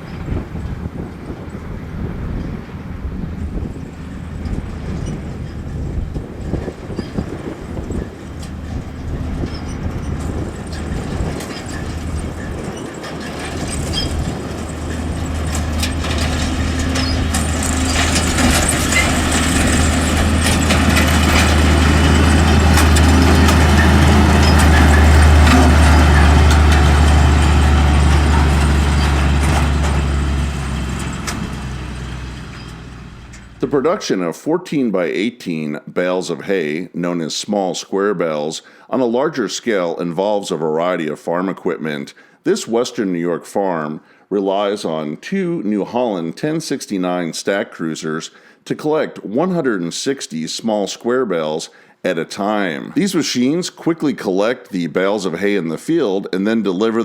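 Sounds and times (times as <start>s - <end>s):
diesel engine drone: 0.0s - 34.0s
machinery clatter and knocks: 3.6s - 33.7s.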